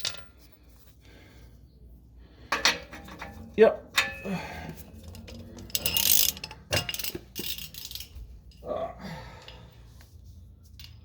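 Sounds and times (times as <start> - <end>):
metal tools clinking: 2.5 - 8.8
ratchet wrench clicking: 5.2 - 8.1.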